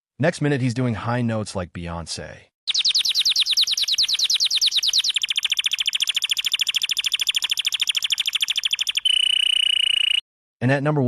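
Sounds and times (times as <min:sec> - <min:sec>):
canary singing: 0:02.7 - 0:10.2.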